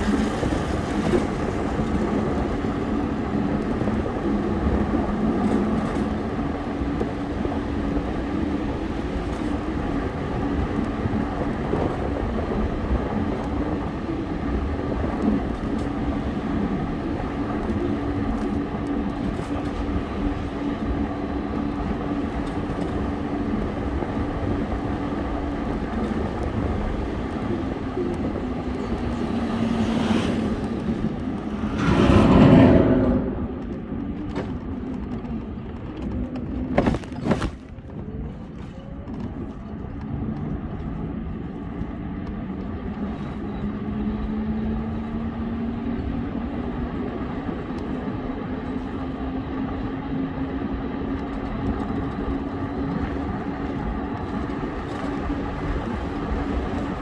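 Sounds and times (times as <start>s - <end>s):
road and traffic noise: 25.0s - 32.3s
low engine tone: 27.9s - 34.6s
vehicle passing close by: 29.3s - 34.0s.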